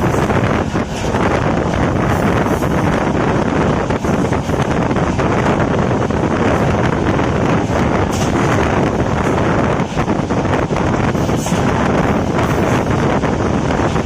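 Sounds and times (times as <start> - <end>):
train running at speed: 0.0 - 14.0
wind buffeting microphone: 0.0 - 14.0.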